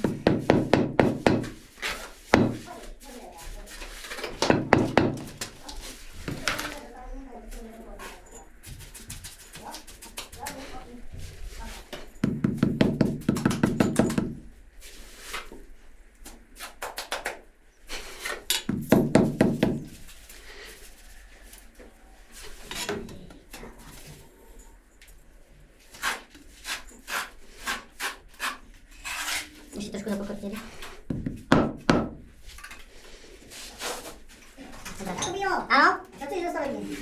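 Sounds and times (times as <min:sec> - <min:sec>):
rapid knocking: 0:00.0 - 0:01.6, 0:04.4 - 0:05.4, 0:12.2 - 0:14.4.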